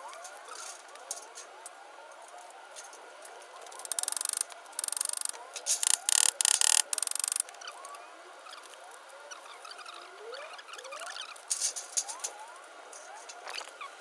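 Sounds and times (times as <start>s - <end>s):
hand tool clicking rapidly: 3.8s - 7.5s.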